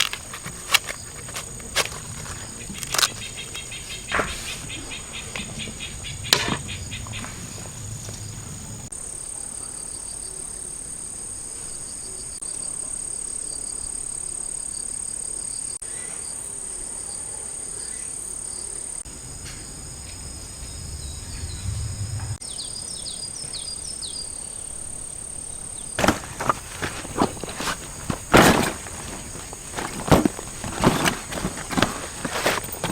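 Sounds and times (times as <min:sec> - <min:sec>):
sharp insect chirps: 0:00.0 - 0:08.9
crickets trilling: 0:00.0 - 0:32.9.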